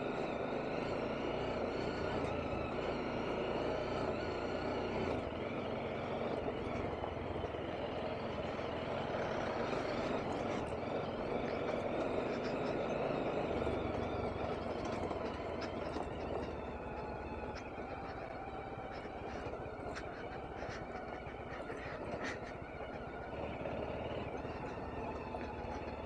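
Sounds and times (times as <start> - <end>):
motorcycle engine at low speed: 0.0 - 26.0
road noise: 0.0 - 26.0
small ticks and rattles: 9.2 - 26.0.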